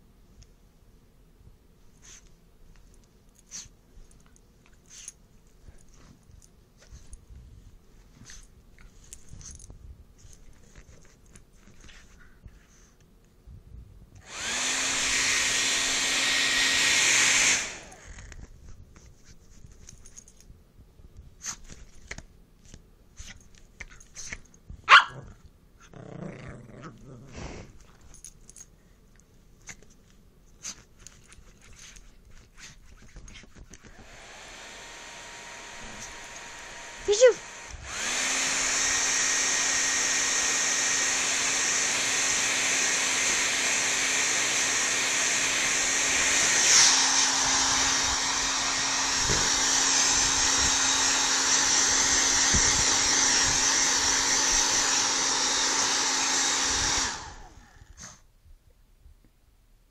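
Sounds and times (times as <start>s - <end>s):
hair dryer blowing: 14.2s - 18.3s, 33.9s - 57.9s
puppy barking: 24.9s - 25.3s
puppy growling: 25.1s - 27.9s.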